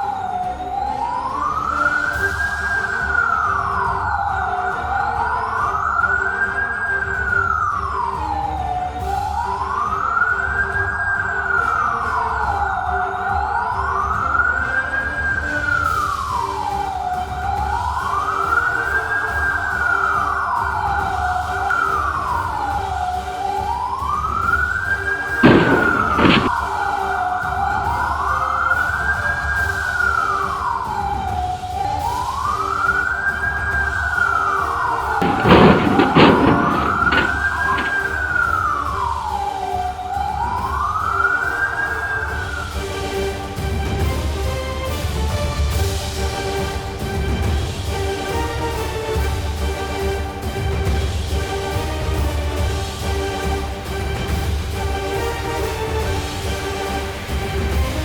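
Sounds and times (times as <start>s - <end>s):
siren wailing: 17.7s - 29.7s, 32.0s - 42.8s
low road rumble: 25.2s - 26.8s, 35.0s - 39.4s
sharp knocks: 25.4s - 26.6s, 35.2s - 38.3s.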